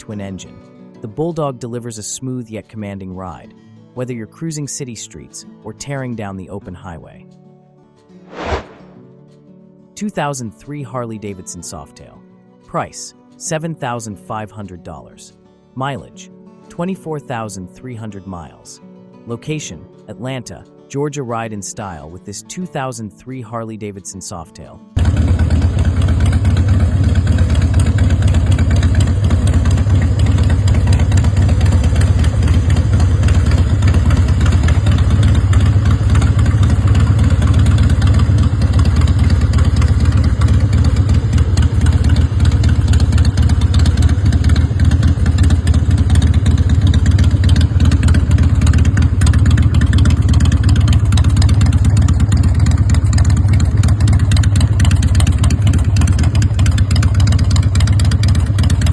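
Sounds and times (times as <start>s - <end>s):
motorcycle engine idling: 25.0s - 58.9s.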